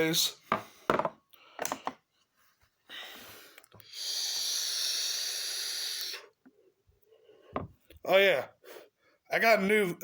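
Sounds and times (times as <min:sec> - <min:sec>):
person breathing close up: 0:02.8 - 0:07.8.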